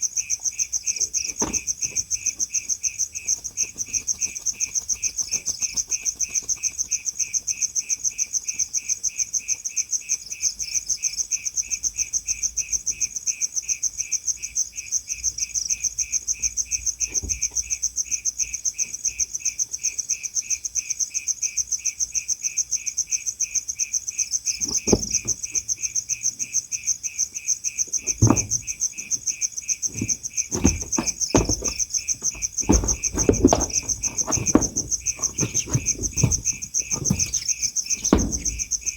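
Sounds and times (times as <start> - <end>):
cricket chirping: 0.0 - 38.9
knocks and bumps: 1.2 - 2.4, 24.6 - 25.7, 28.0 - 38.9.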